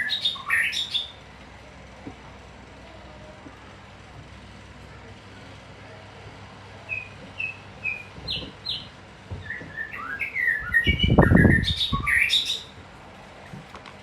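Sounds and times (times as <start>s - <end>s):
songbird chirping: 0.0s - 1.2s, 6.8s - 12.8s
low rumbling noise: 0.0s - 14.0s.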